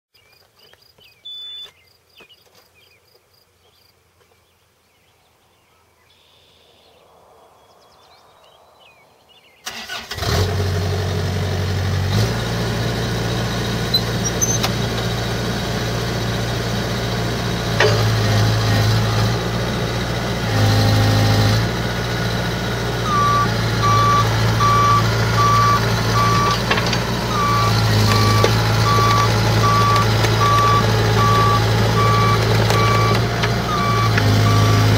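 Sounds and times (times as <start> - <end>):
diesel engine running: 9.6 - 34.9
travel alarm beeping: 23.0 - 34.9.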